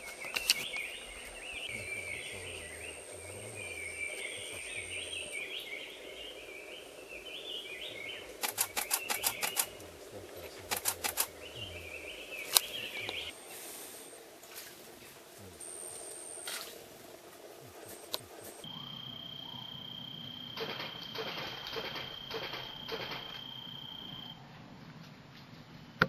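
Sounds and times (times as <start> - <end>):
songbird chattering: 0.0 - 14.2, 15.4 - 24.3
camera shutter clicks: 8.4 - 9.7, 10.7 - 11.3, 20.6 - 23.4.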